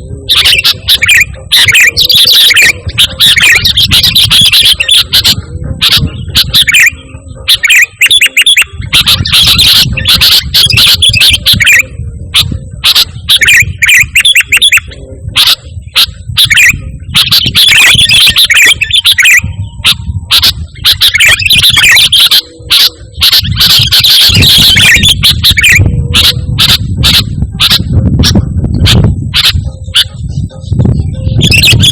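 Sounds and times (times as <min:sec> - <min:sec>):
bird singing bubbling notes: 0:00.0 - 0:31.9
low rumble: 0:25.8 - 0:31.6.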